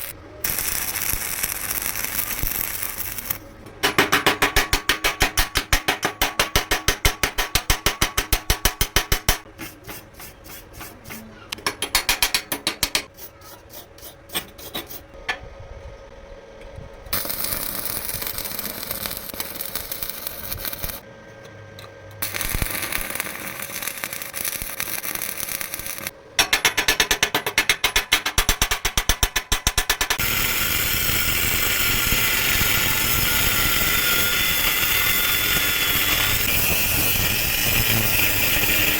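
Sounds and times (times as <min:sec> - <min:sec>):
tool striking metal: 0:03.7 - 0:15.4, 0:26.4 - 0:30.3.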